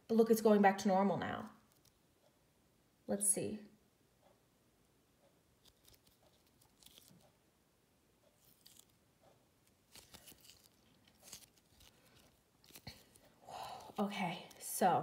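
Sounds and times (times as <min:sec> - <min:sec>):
squishy toy crackling and tearing: 0:05.6 - 0:07.2, 0:08.4 - 0:09.0, 0:09.9 - 0:14.6.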